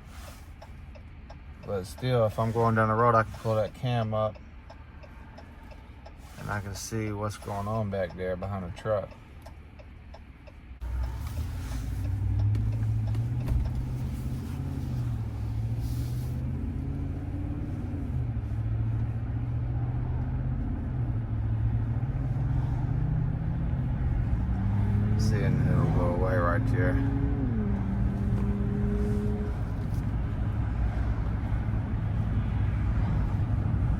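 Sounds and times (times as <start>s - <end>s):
road noise: 0.0s - 33.9s
pickup engine drone: 10.8s - 33.9s.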